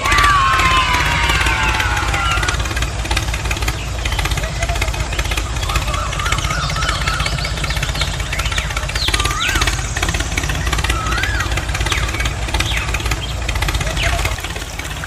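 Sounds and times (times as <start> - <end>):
small tractor engine chugging: 0.0 - 15.0
thin wavering chirps: 3.5 - 15.0.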